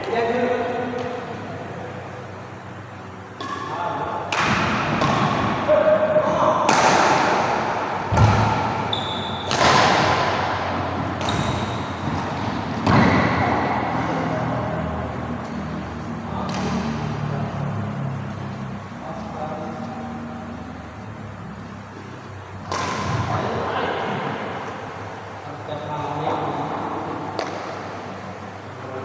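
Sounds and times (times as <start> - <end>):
rackets hitting shuttlecock: 3.2 - 17.2, 22.2 - 24.8, 27.3 - 28.1.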